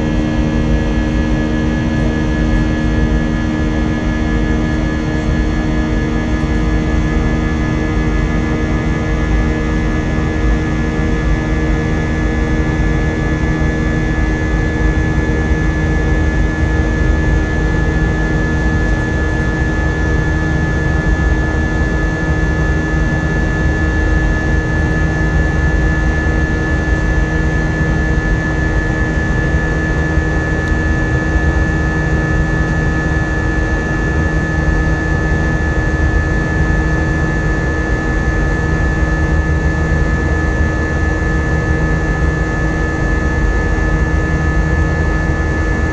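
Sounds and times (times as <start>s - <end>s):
jet engines in aircraft cabin: 0.0s - 45.9s.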